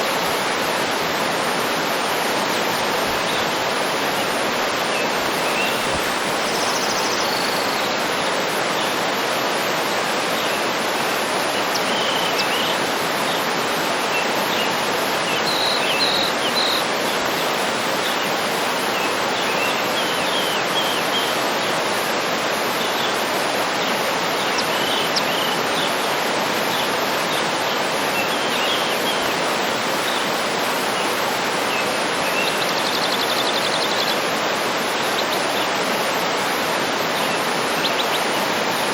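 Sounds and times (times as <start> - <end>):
waterfall rushing: 0.0 - 38.9
birds chirping: 4.8 - 8.0.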